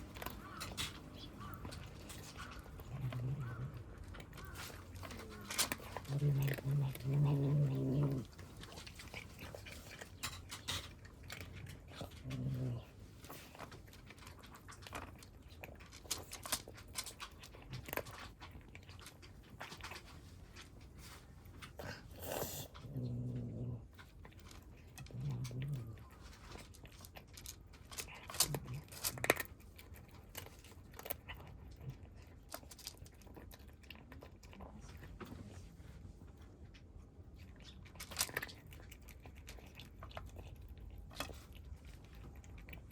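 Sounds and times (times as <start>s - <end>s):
low animal vocal sounds: 0.0s - 10.9s, 11.5s - 13.6s, 21.6s - 24.1s, 24.8s - 26.3s
cats crunching food: 0.0s - 42.9s.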